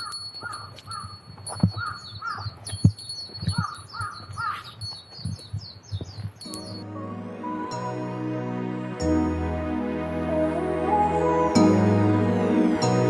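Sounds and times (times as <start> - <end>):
small bird chirping: 0.0 - 6.8.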